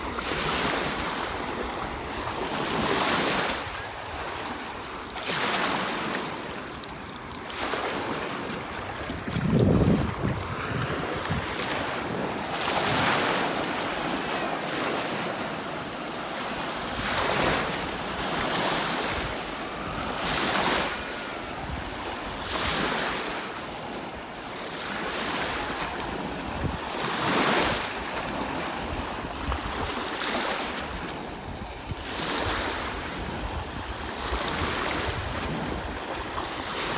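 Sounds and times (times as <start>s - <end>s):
waves washing onto a beach: 0.0s - 36.9s
wind gusts on microphone: 7.7s - 14.2s, 25.5s - 36.9s.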